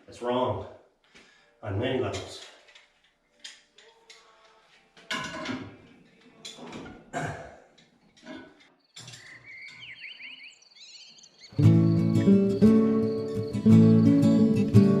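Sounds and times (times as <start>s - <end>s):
bird chirping and whistling: 8.9s - 15.0s
acoustic guitar music: 11.5s - 15.0s.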